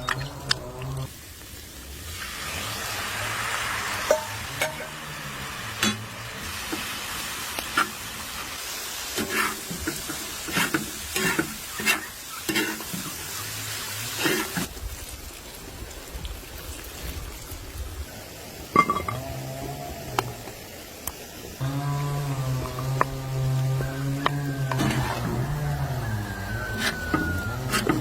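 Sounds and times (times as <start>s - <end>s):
food sizzling in a pan: 0.1s - 15.8s, 18.0s - 28.0s
utensil scraping and knocking pan: 26.8s - 28.0s.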